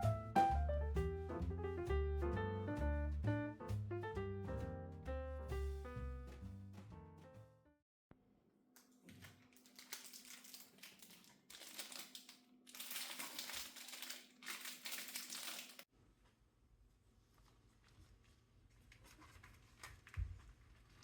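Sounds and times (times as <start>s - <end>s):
crinkling and rustling: 8.8s - 15.9s, 17.2s - 21.0s.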